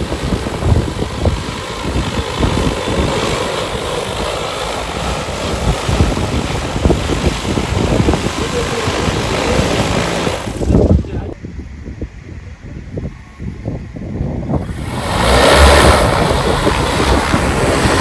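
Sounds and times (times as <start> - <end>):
drone propellers humming: 0.0 - 18.0
wind buffeting microphone: 0.0 - 18.0.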